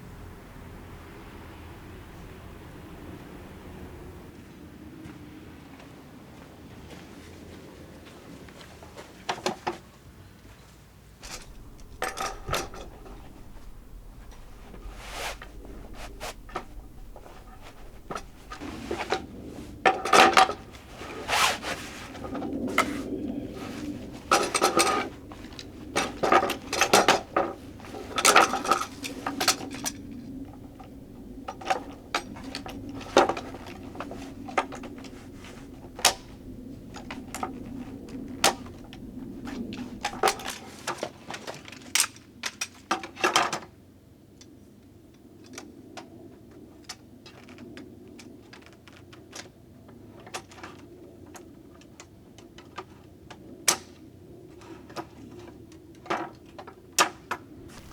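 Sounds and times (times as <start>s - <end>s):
low background noise: 0.0s - 45.6s, 57.4s - 57.9s.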